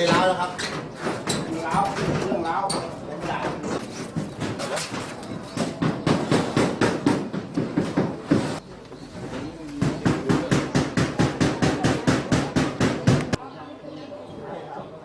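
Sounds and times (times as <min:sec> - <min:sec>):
rapid hammering: 0:05.6 - 0:08.6, 0:09.8 - 0:13.4.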